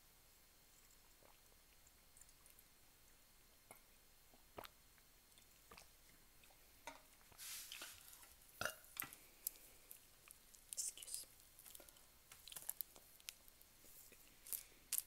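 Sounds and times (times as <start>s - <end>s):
mouth clicks and chewing smacks: 3.7s - 6.6s.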